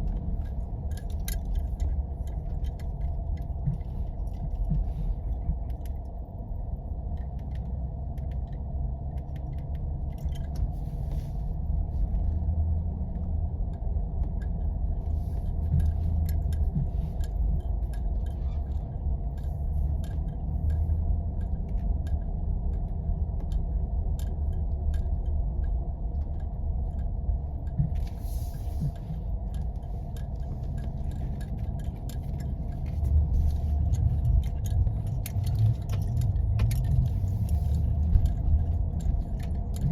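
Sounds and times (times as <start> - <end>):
engine and tyres rumbling: 0.0 - 39.9
light clicks and rattles: 0.0 - 39.9.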